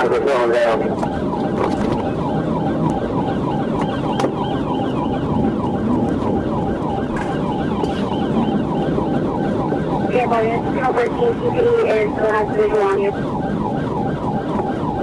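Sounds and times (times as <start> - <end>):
police siren yelping: 0.0 - 15.0
vehicle road noise: 0.0 - 15.0.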